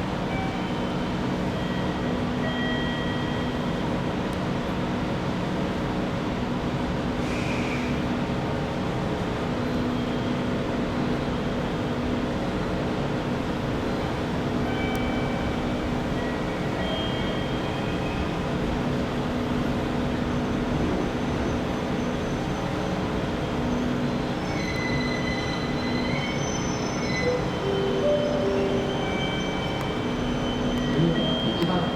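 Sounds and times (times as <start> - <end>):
electric train running hum: 8.0 - 31.9
brake and wheel squeals: 23.6 - 31.9.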